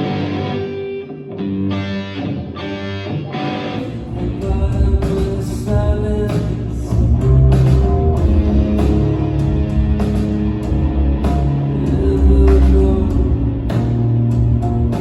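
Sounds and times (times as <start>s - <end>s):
bass guitar: 0.0s - 15.0s
electric guitars: 0.0s - 15.0s
drums steady beat: 4.4s - 15.0s.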